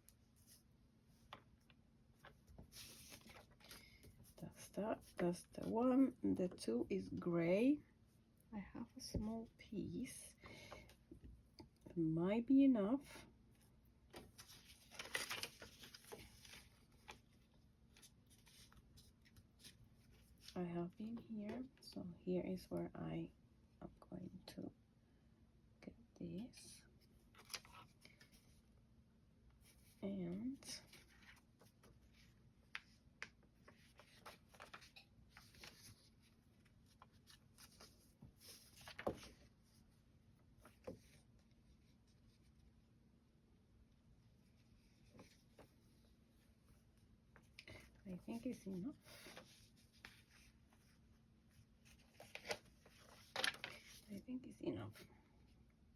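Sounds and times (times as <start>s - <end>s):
fabric and paper rustling: 0.0s - 6.1s, 14.1s - 21.7s, 29.6s - 42.6s, 44.4s - 54.2s.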